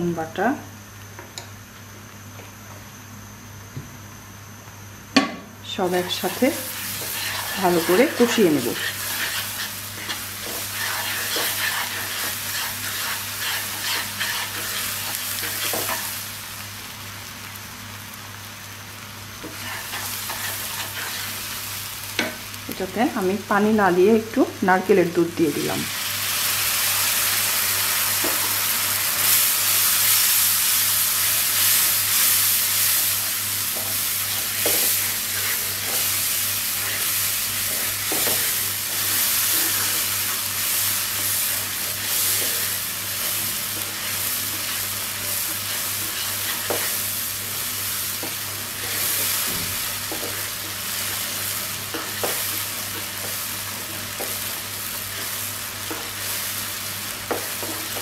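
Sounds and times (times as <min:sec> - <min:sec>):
masala sizzling in oil: 0:04.9 - 0:58.0
wooden spatula stirring and scraping: 0:06.3 - 0:16.1, 0:19.4 - 0:21.6, 0:33.6 - 0:54.5.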